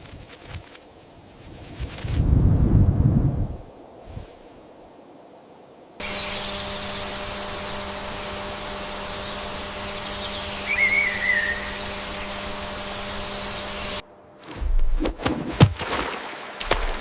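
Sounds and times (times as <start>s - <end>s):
outdoor ambience hiss: 0.0s - 17.0s
low steady hum: 6.0s - 17.0s
warbling whistle-like call: 9.1s - 13.7s.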